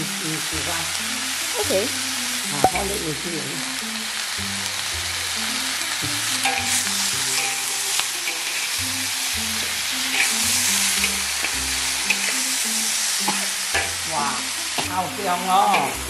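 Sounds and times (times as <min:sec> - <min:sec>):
meat sizzling in hot oil: 0:00.0 - 0:16.0
spatula stirring and scraping: 0:06.3 - 0:14.0.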